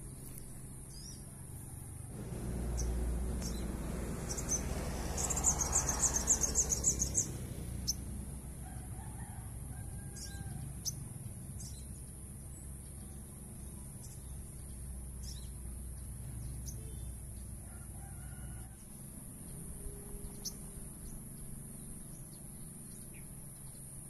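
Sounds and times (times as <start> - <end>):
small songbird chirping: 0.0 - 1.5, 2.1 - 8.2, 10.1 - 24.0
insect hiss: 0.0 - 8.8, 9.4 - 24.0
low rumble: 2.1 - 5.7.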